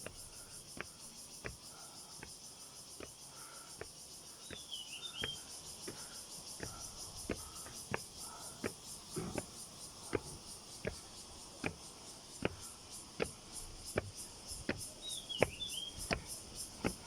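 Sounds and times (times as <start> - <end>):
footsteps climbing steps: 0.0 - 17.0
insects buzzing: 0.0 - 17.0
bird chirping: 3.5 - 12.0, 13.5 - 16.9.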